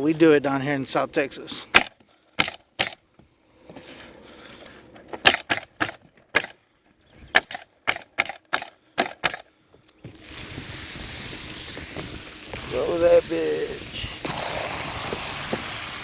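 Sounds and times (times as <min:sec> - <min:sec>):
pneumatic nailer firing: 0:01.7 - 0:03.0, 0:05.2 - 0:06.6, 0:07.3 - 0:09.5, 0:14.2 - 0:16.0.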